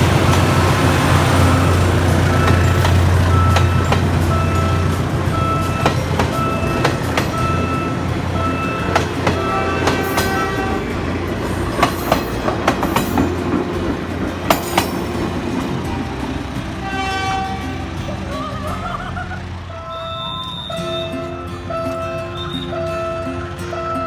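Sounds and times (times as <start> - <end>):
low engine drone: 0.0 - 24.0
train wheels clicking over rail joints: 0.0 - 24.0
short high beeps: 19.8 - 23.6.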